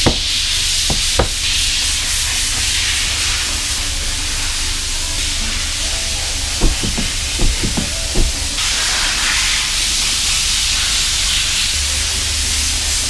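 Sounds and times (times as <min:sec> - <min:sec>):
light knocks: 0:00.0 - 0:01.6, 0:06.6 - 0:08.6.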